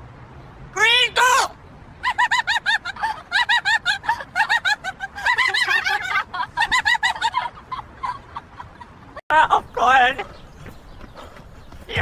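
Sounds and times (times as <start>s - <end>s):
high-pitched laughter: 2.0s - 9.7s.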